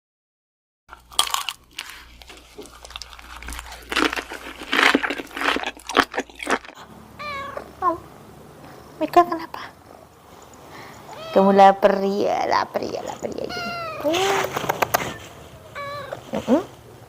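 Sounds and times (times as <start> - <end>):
crunchy food chewing: 0.9 - 6.9.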